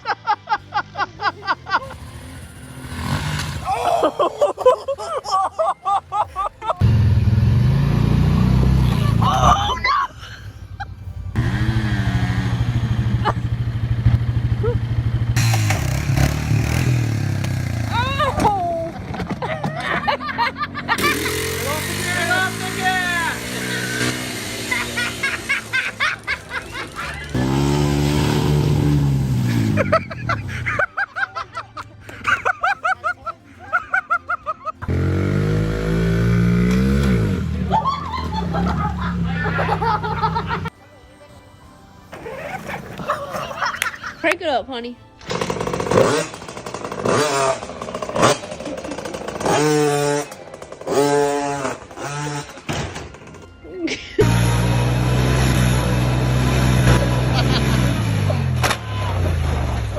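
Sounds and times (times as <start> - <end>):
person laughing in bursts: 0.0 - 2.0, 3.6 - 6.8, 8.8 - 10.9, 18.0 - 22.1, 23.4 - 27.6, 29.5 - 34.9, 37.6 - 40.7, 42.2 - 44.2, 57.1 - 58.4
motorcycle engine running: 6.8 - 9.7, 10.6 - 19.5, 20.6 - 30.7, 34.8 - 40.7, 45.2 - 52.6, 54.2 - 59.9.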